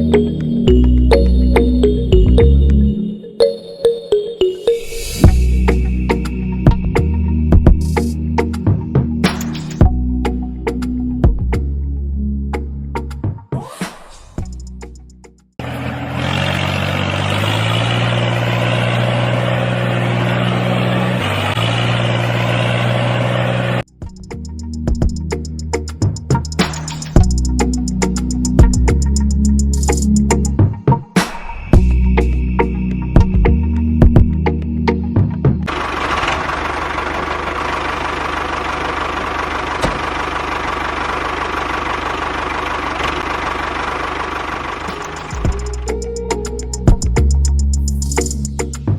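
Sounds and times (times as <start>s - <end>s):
small engine idling: 15.6s - 23.8s, 35.7s - 48.4s.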